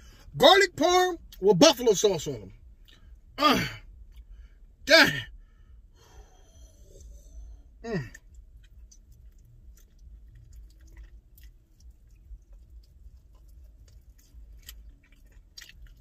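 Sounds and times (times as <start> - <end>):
low steady hum: 0.0 - 16.0
man chewing with mouth smacks: 2.6 - 3.3, 3.9 - 4.4, 6.0 - 16.0.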